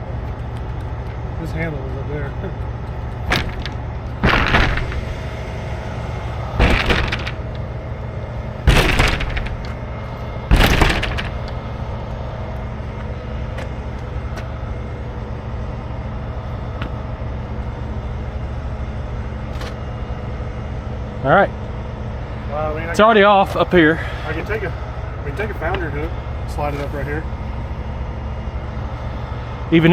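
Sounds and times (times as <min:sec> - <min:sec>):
truck engine running: 0:00.0 - 0:20.8
loud sharp noises: 0:03.3 - 0:05.6, 0:06.6 - 0:07.5, 0:08.5 - 0:09.9, 0:10.5 - 0:11.6.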